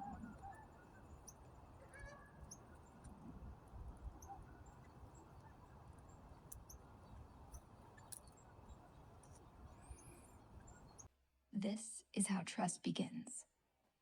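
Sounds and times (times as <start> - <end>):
small birds chirping: 0.0 - 11.1.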